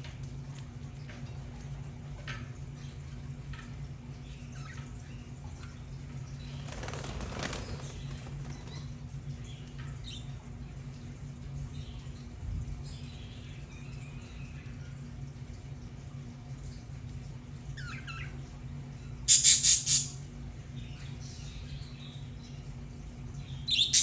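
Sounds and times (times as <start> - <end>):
steady low hum: 0.0 - 24.0
wing flapping: 6.4 - 9.0.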